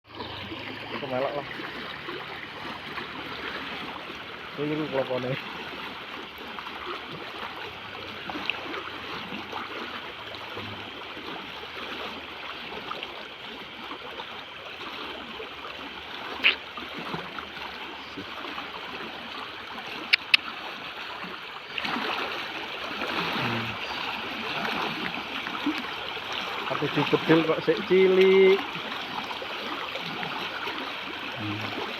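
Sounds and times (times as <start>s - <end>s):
stream flowing: 0.1s - 31.9s
sharp clicks: 20.1s - 20.4s.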